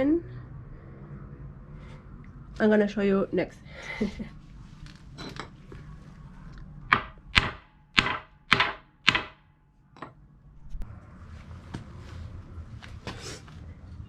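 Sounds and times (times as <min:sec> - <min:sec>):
hammer striking wood: 0:06.9 - 0:09.5.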